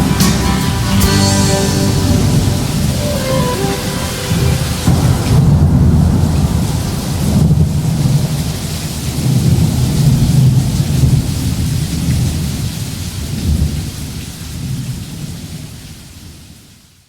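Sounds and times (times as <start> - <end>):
steady rain hiss: 0.0 - 17.0
rolling thunder: 2.1 - 12.5.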